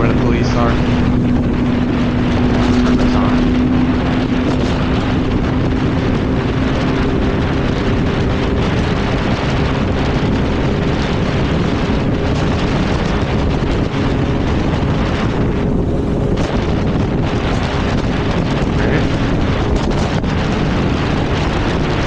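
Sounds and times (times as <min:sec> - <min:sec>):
motorcycle engine cruising: 0:00.0 - 0:22.0
wind noise on microphone: 0:00.0 - 0:22.0.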